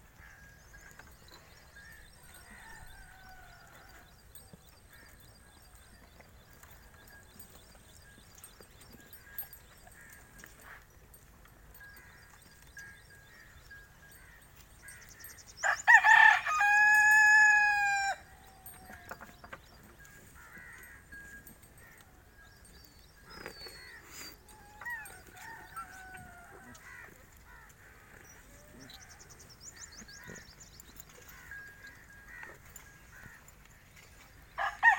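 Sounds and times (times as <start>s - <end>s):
rooster crowing: 15.6s - 18.3s, 34.6s - 34.9s.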